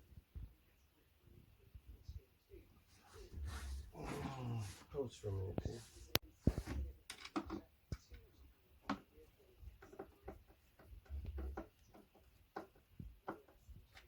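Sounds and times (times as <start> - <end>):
furniture parts clicking and knocking: 8.8 - 14.0.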